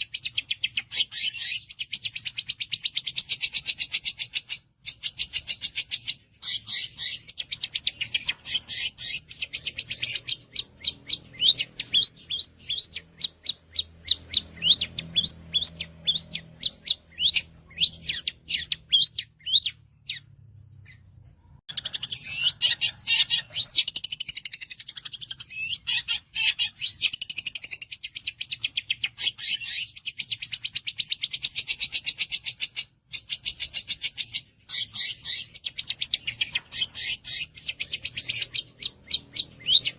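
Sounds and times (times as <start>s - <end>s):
shrike chattering song: 0.0s - 21.1s.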